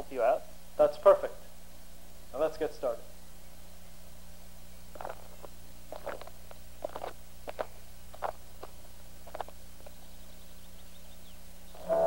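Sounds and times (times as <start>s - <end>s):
footsteps through leafy undergrowth: 4.9s - 10.0s.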